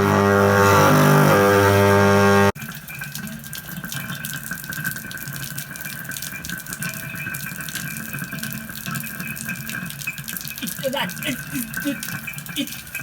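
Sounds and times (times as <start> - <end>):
running water splashing: 2.6 - 13.0.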